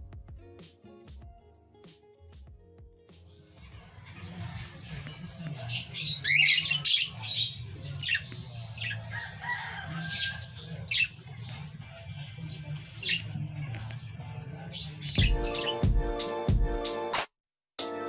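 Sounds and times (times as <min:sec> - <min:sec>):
cockatiel chirping: 0:03.8 - 0:11.3, 0:15.0 - 0:15.9.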